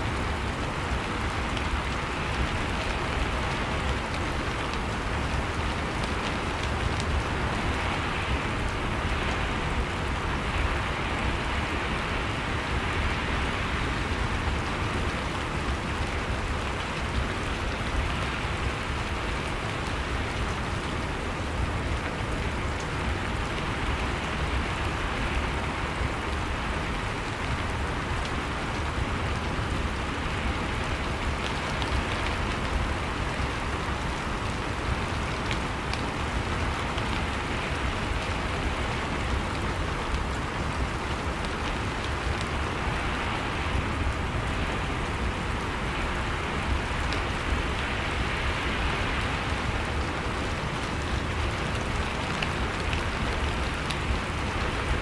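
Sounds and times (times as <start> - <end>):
steady rainfall: 0.0 - 55.0
raindrops ticking: 43.6 - 55.0.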